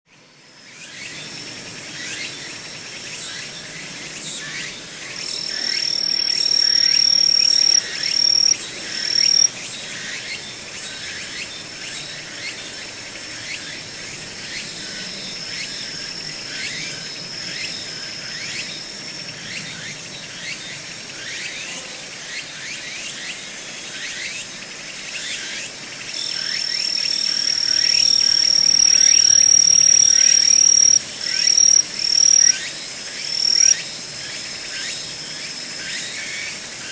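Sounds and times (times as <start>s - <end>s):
insect high trill: 2.8s - 10.4s, 26.2s - 36.6s
insects falling chirps: 27.0s - 32.7s, 33.3s - 33.8s.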